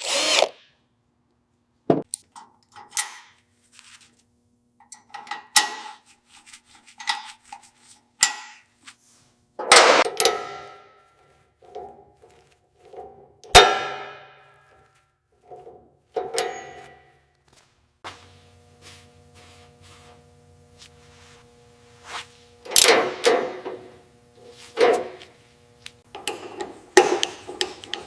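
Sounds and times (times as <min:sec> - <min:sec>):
steady machine hum: 0:07.5 - 0:28.0
metal tools clanking: 0:15.4 - 0:17.1.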